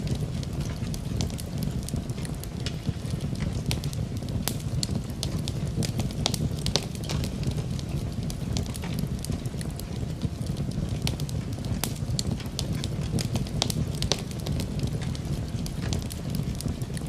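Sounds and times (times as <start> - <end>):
soft rain hiss: 0.0 - 17.0
wood fire crackling and popping: 0.0 - 17.0.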